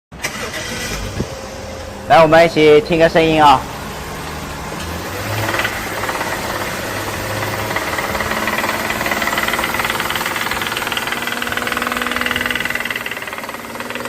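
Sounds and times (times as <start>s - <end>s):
engine revving with rhythmic knocking: 3.6s - 14.0s.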